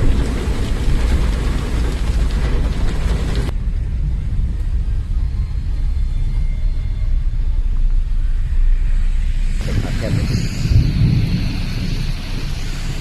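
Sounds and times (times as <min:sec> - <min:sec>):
vehicle driving rumble: 0:00.0 - 0:13.0
loud hiss: 0:08.2 - 0:13.0.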